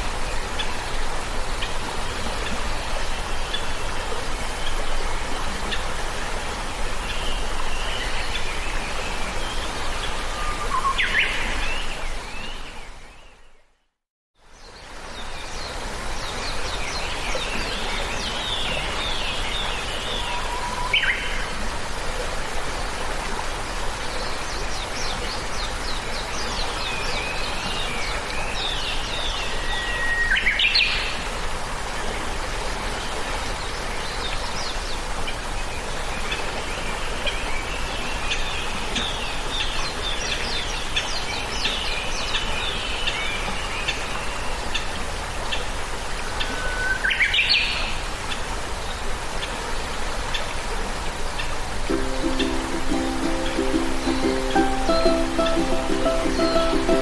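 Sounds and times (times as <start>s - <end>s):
background hiss: 45.2s - 57.0s.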